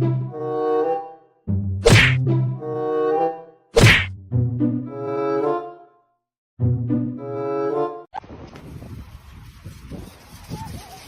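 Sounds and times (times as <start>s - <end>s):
sharp whack: 1.8s - 2.2s, 3.8s - 4.2s.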